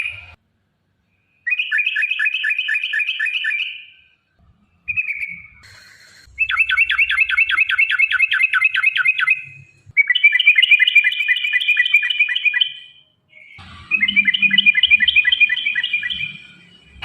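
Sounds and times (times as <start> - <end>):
bird chattering song: 4.9 - 16.6.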